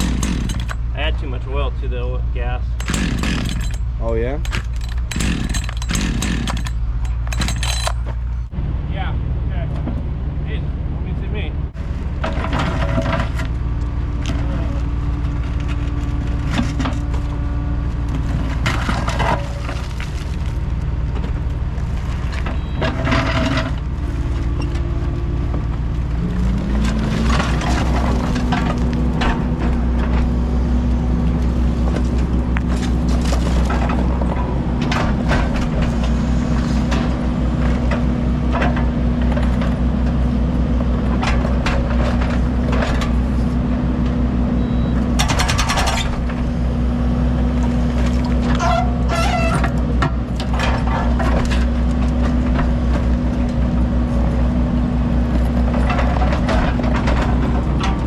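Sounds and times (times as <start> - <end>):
debris knocking and cracking: 0.0 - 0.9, 2.8 - 8.4
diesel machinery engine running: 0.0 - 58.0.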